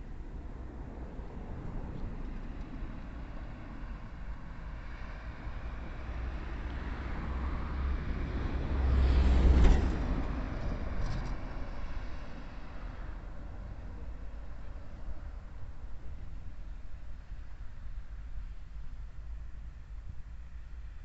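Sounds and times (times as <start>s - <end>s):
car passing by: 0.8s - 15.2s.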